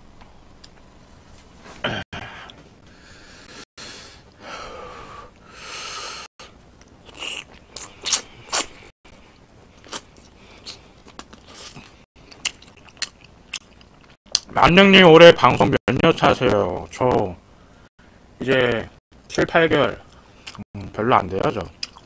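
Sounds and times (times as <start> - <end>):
breathy exhales: 1.8 - 6.4
chewing and lip smacks: 9.7 - 14.5, 21.7 - 22.0.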